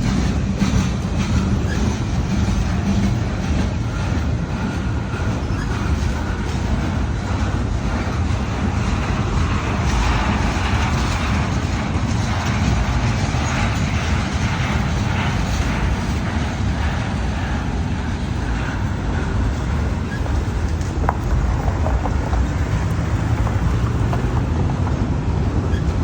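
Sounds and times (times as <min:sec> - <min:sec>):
train rolling by: 0:00.0 - 0:26.0.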